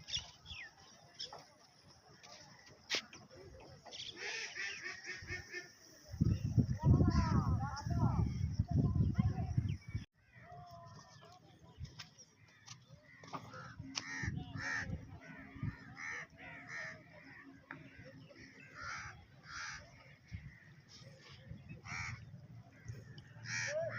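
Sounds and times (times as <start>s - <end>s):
birds making harsh calls: 3.9s - 5.8s, 12.3s - 23.9s.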